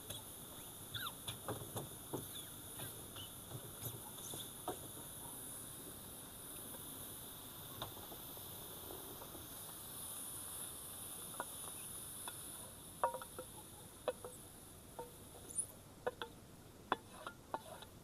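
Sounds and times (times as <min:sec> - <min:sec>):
insects chirring: 0:00.0 - 0:05.7, 0:09.2 - 0:16.4.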